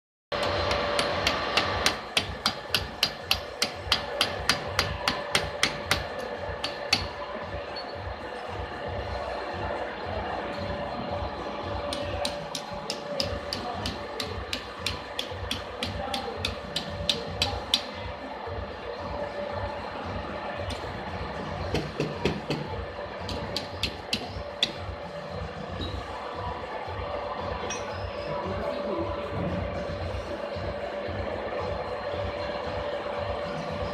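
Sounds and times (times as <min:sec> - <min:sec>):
sharp metallic taps: 0:00.4 - 0:07.1.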